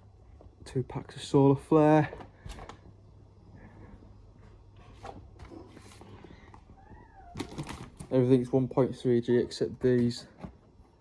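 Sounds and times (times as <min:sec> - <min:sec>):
low background hum: 0:00.0 - 0:11.0
packs knocking and rustling: 0:07.4 - 0:08.1.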